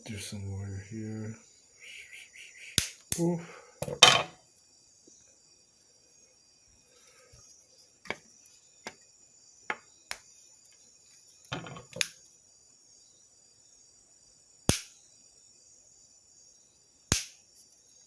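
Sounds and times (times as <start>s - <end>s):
loud sharp snap: 2.8s - 3.3s, 14.7s - 14.9s, 17.1s - 17.4s
hand tools clicking and knocking: 3.8s - 4.4s, 11.6s - 12.0s.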